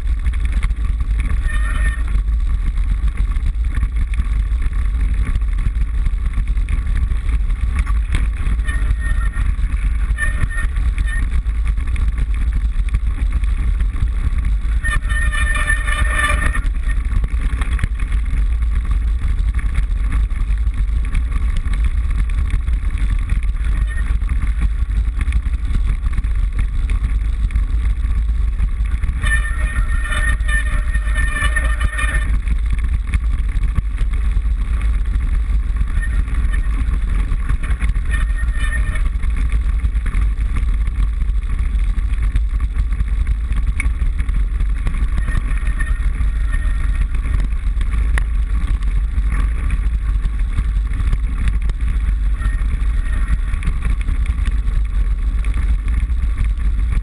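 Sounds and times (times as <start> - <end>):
low rumble of wind and vibration: 0.0 - 57.0
higher-pitched buzz: 1.2 - 2.2, 7.8 - 11.4, 14.7 - 17.7, 28.8 - 32.5, 35.8 - 39.4, 44.9 - 47.5, 52.1 - 54.0.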